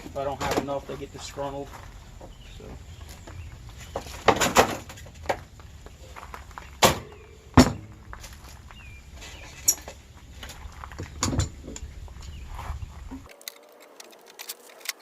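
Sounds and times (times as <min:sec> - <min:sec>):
metal parts knocking and clanking: 0:11.0 - 0:11.9.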